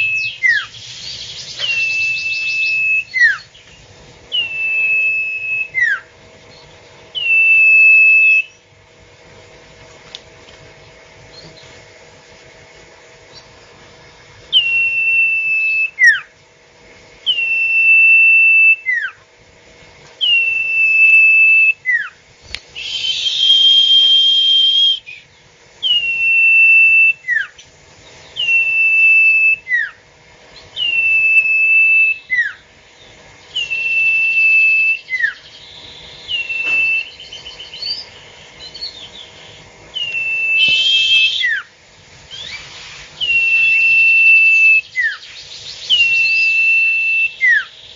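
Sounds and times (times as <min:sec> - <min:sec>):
bird whistled call: 0:00.0 - 0:08.6, 0:14.5 - 0:16.3, 0:17.2 - 0:19.2, 0:20.2 - 0:30.0, 0:30.6 - 0:41.7, 0:42.3 - 0:47.9
hiss: 0:40.0 - 0:47.0.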